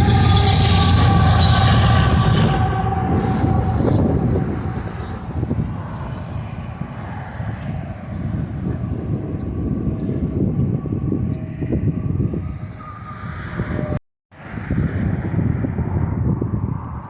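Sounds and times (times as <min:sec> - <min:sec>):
freight train rumbling on track: 0:00.0 - 0:14.0.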